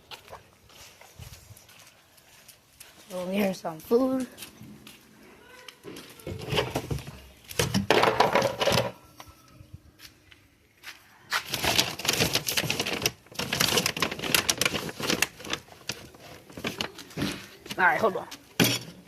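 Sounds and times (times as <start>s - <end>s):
dry dog food rattling: 11.4s - 17.1s.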